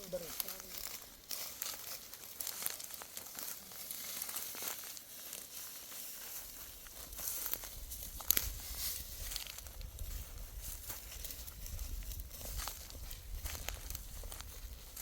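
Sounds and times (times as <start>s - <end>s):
dry wheat stalks rustling: 0.0s - 15.0s.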